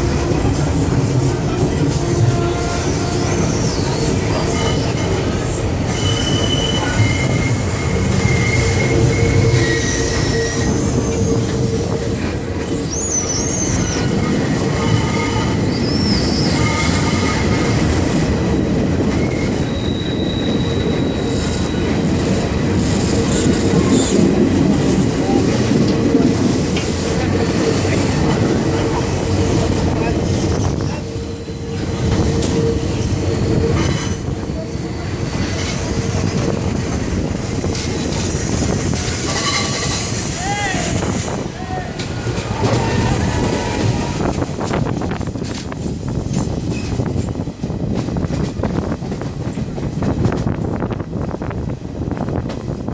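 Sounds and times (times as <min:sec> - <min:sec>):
train wheels rumbling: 0:00.0 - 0:52.9
high-pitched wheel squeals: 0:05.8 - 0:12.0, 0:12.7 - 0:17.8, 0:19.1 - 0:21.9.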